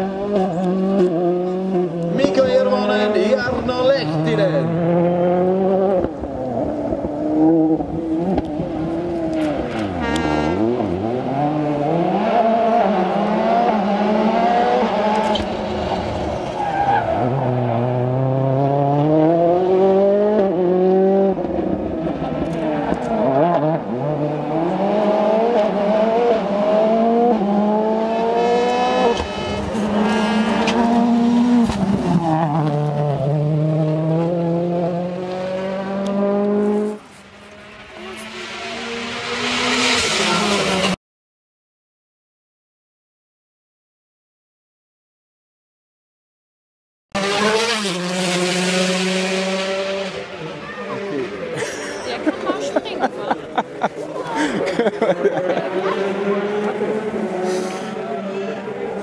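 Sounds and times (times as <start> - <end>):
rally car engines at full throttle: 0.0 - 41.0, 47.1 - 59.0
tyre noise on road: 0.0 - 41.0.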